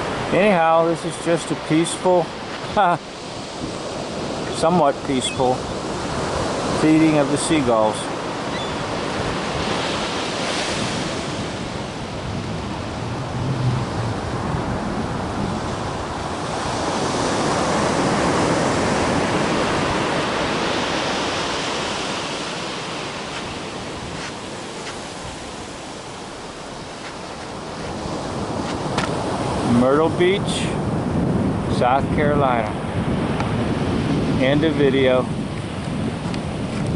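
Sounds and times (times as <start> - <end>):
ocean waves breaking: 0.0 - 36.9.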